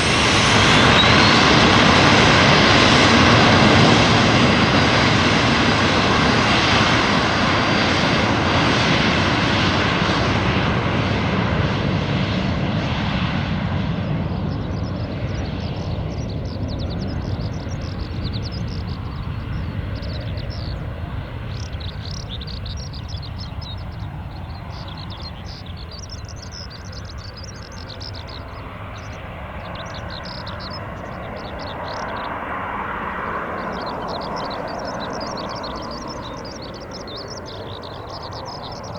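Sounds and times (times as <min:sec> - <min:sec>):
jet engine noise: 0:00.0 - 0:38.9
high chirps: 0:14.4 - 0:38.9.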